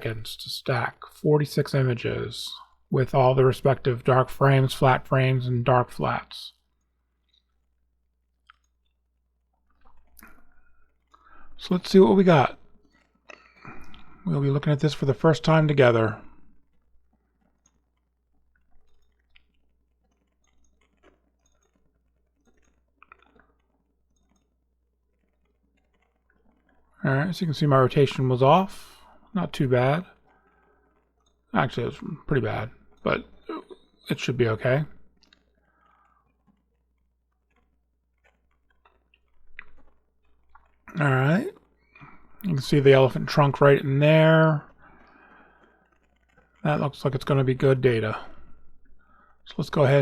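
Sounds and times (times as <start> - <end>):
computer mouse and keyboard clicks: 16.5 - 27.0, 29.6 - 50.0.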